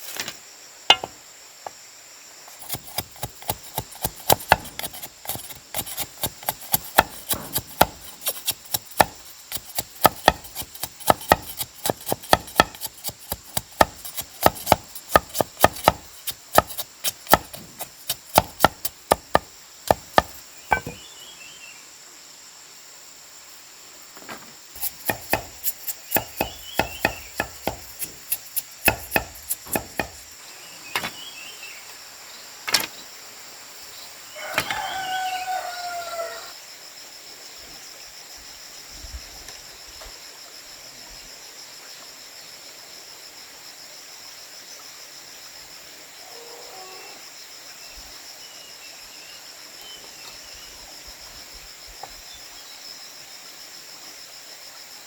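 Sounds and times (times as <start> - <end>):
high insect drone: 0.0 - 55.0
chopping strikes on wood: 0.9 - 1.2, 2.6 - 21.0, 24.8 - 30.4.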